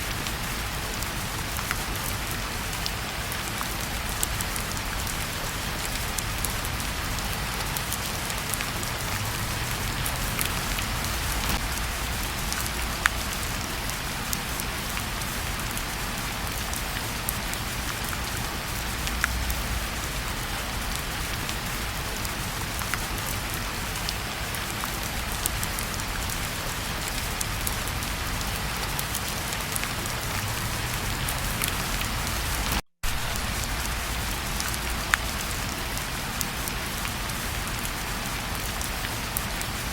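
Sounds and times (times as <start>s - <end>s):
fireplace fire popping and crackling: 0.0s - 15.8s
rain falling: 0.0s - 39.9s.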